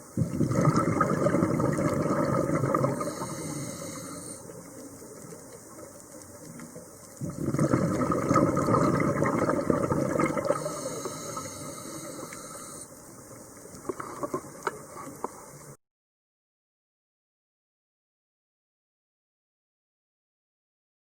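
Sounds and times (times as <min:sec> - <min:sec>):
diver's bubbles gurgling underwater: 0:00.2 - 0:04.0, 0:07.1 - 0:12.5
small clicks: 0:12.0 - 0:15.7.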